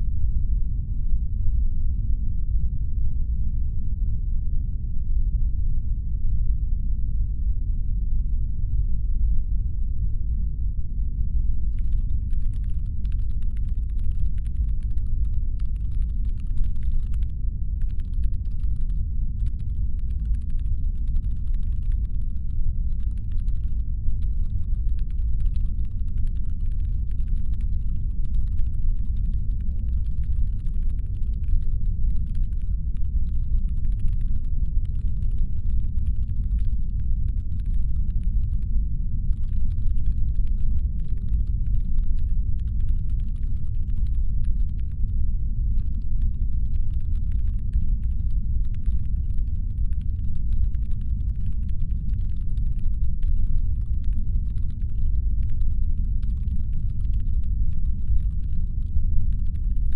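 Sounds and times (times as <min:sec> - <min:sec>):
rapid fine clicking: 0:11.8 - 0:38.6, 0:45.9 - 0:59.8.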